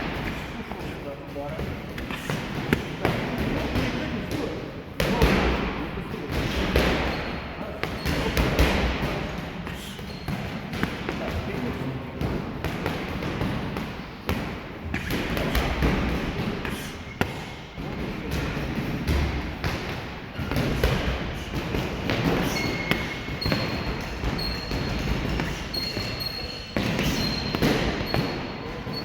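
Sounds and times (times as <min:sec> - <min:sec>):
short high squeaks: 0:22.4 - 0:29.0.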